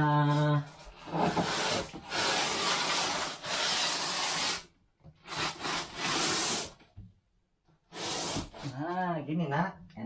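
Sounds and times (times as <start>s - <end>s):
rasping scraping strokes: 0.3s - 4.7s, 5.3s - 6.8s.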